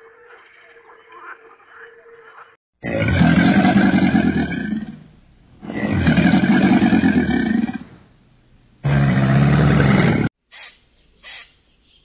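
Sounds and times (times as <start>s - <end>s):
crocodile bellowing: 2.8s - 5.0s, 8.8s - 10.3s.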